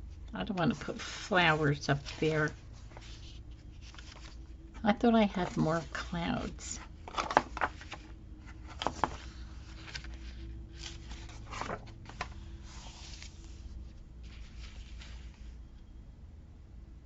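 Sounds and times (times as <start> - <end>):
low hum: 0.0 - 17.0
paper rustling: 0.5 - 15.6.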